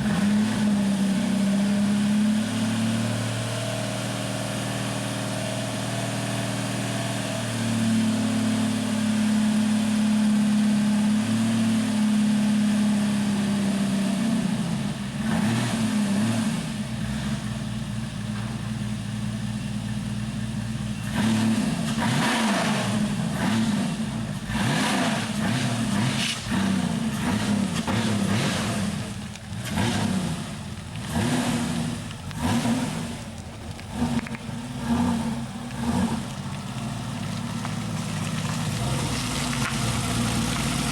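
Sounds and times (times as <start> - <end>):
race car engine revving: 0.0 - 7.9, 21.0 - 40.9.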